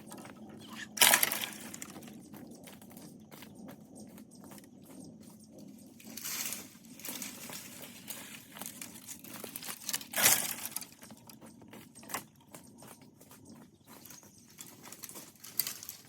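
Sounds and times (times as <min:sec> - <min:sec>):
dry leaves rustling: 0:00.6 - 0:02.1, 0:06.0 - 0:11.4, 0:13.9 - 0:16.0.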